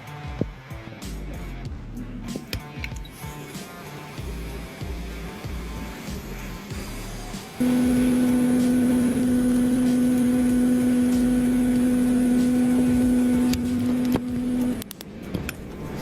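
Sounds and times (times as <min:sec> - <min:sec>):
electrical machine hum: 0:07.6 - 0:14.9.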